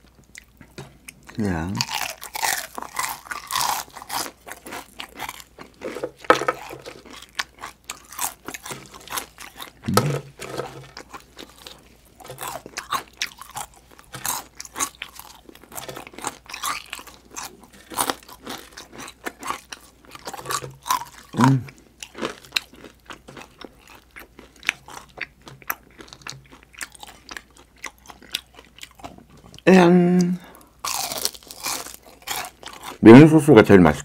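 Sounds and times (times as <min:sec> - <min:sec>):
crunching crispy chicken skin: 0:01.8 - 0:06.0, 0:30.8 - 0:33.0.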